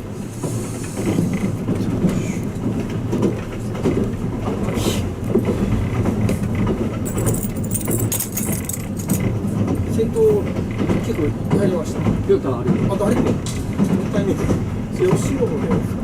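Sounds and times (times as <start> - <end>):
train wheels rumbling on rails: 0.0 - 16.0
metallic jingle: 7.1 - 9.2.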